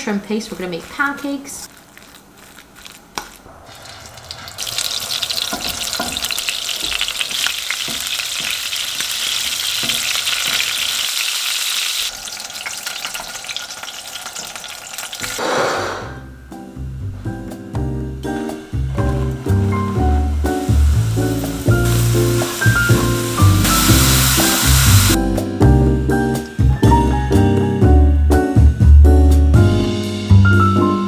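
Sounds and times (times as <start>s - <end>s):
pancakes sizzling in oil: 3.7s - 15.4s, 20.4s - 25.2s.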